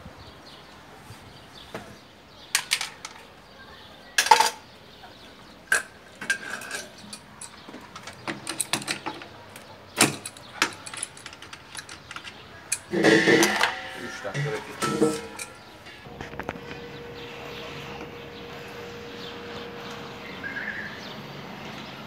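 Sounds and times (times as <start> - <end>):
metallic clatter of tools: 2.6 - 3.3, 4.2 - 4.6, 5.7 - 16.1.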